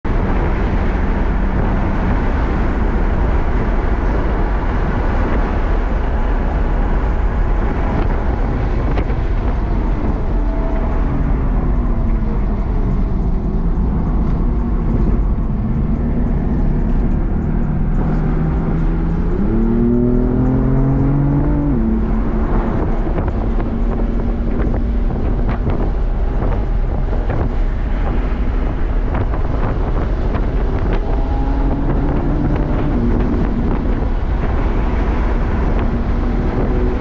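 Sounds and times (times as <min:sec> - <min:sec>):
wind and road noise: 0:00.0 - 0:37.0
car engine from inside cabin: 0:00.1 - 0:37.0.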